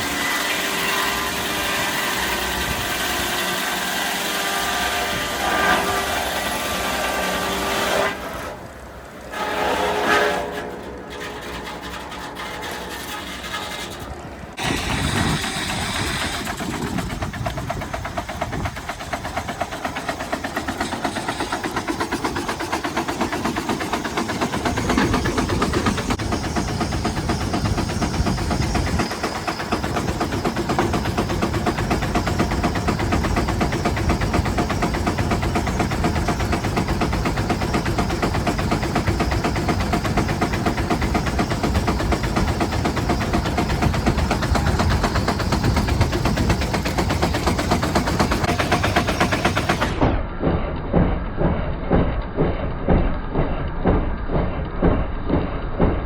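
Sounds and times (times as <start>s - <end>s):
steam engine exhaust thumping: 14.6s - 56.0s.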